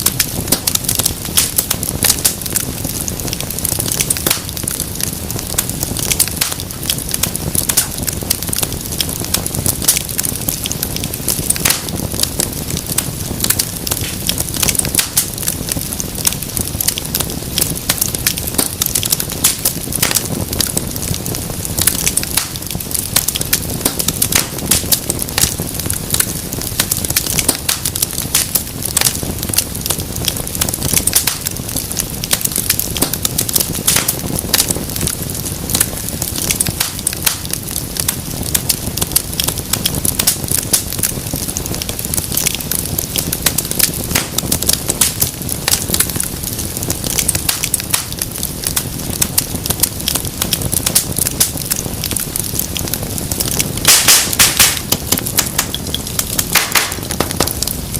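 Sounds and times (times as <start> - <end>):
fire crackles and pops: 0.0 - 57.9
fire flames rumbling: 0.0 - 57.9.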